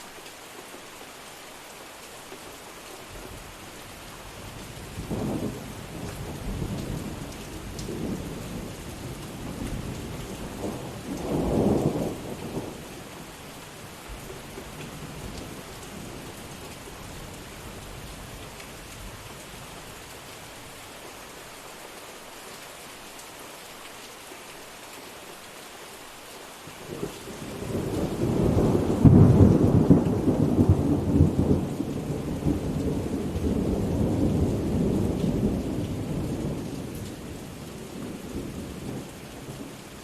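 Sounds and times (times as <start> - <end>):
heavy rain: 0.0 - 40.0
rolling thunder: 27.4 - 36.9.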